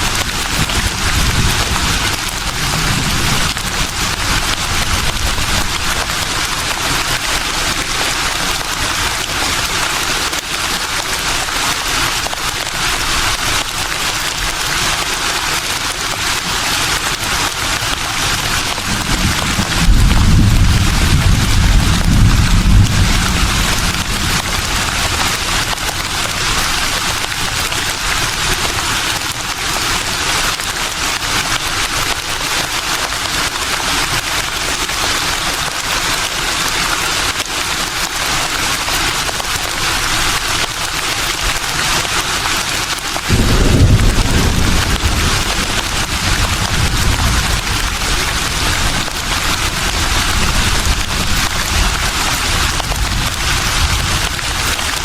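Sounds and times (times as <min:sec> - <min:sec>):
deep wind rumble: 0:18.7 - 0:26.6, 0:43.3 - 0:55.0
leaves rustling in breeze: 0:32.7 - 0:55.0.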